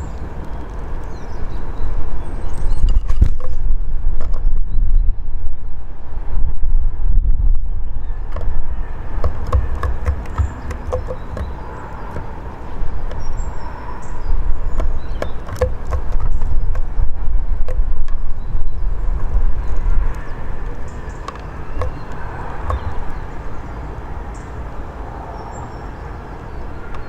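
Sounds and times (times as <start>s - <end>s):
steady low rumble: 0.0s - 27.0s
thin high bird calls: 7.9s - 27.0s
birds tapping at bird table: 8.3s - 14.0s, 14.6s - 17.0s, 20.0s - 23.7s.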